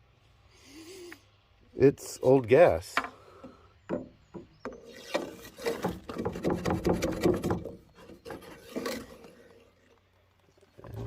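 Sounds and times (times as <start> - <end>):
dipstick scraping inside metal tube: 4.7 - 9.9.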